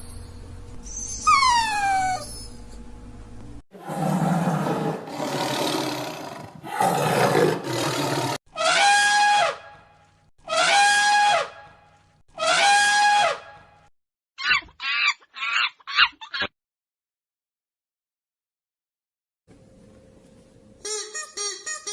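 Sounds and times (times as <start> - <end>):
animal roaring: 3.7 - 8.4.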